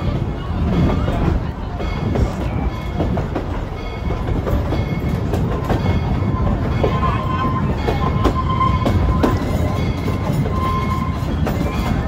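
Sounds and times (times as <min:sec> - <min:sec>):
train rumble: 0:00.0 - 0:12.0
train wheels clacking on rails: 0:00.0 - 0:12.0
high wheel squeal: 0:05.8 - 0:12.0.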